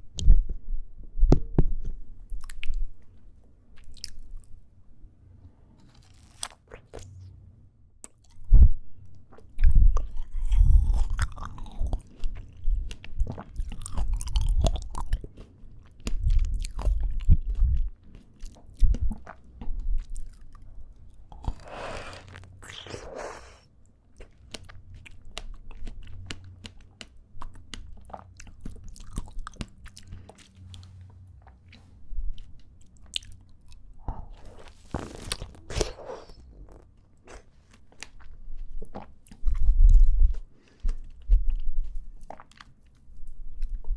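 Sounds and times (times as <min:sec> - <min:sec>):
chewing crunchy fruit: 0:05.8 - 0:07.3, 0:09.3 - 0:23.6, 0:24.2 - 0:43.9.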